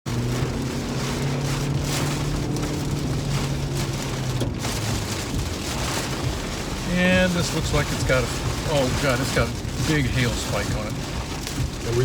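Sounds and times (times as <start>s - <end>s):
car low hum: 0.0s - 12.0s
heavy rain on car: 0.0s - 12.0s.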